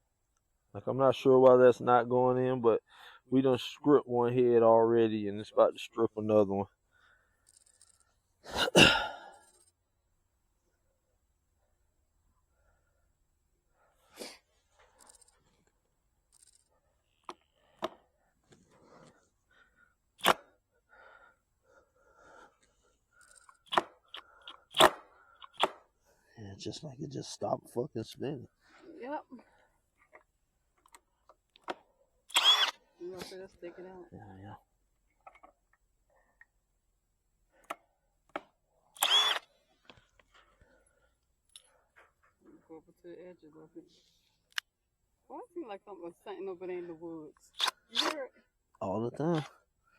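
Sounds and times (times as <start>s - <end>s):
cordless drill driving screw: 20.2s - 20.5s, 23.2s - 25.8s, 32.3s - 32.8s, 39.0s - 39.6s, 47.5s - 48.2s
sharp clicks: 32.3s - 32.8s, 39.0s - 39.5s.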